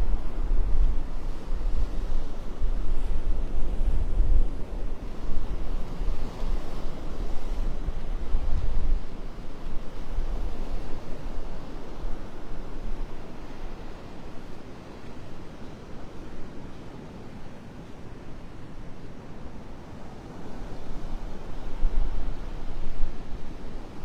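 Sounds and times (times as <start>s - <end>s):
wind buffeting microphone: 0.0s - 14.0s, 20.4s - 24.0s
surf on beach: 0.0s - 24.0s.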